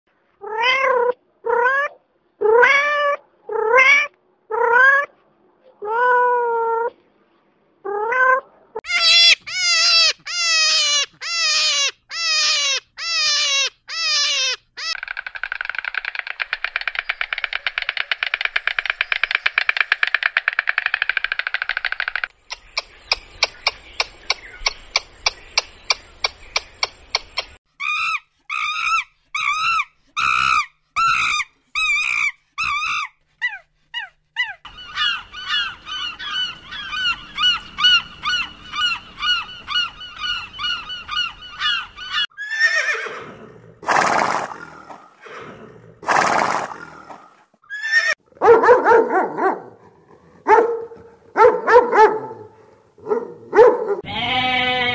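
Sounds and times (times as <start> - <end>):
honking and chattering calls: 8.8 - 24.8, 34.6 - 43.1
stork bill clattering: 14.8 - 27.6
horse whinnies: 42.4 - 47.0, 47.7 - 48.2.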